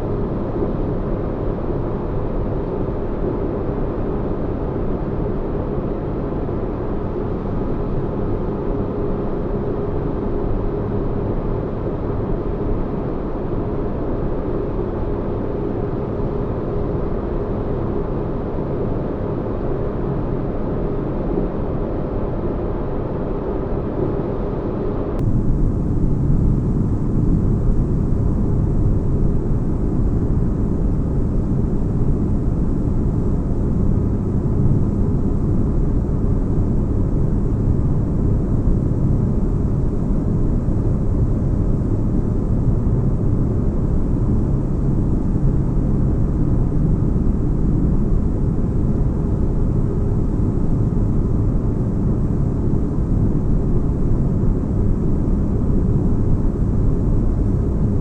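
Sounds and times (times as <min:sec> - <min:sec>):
deep bass drone: 0:25.2 - 0:45.4.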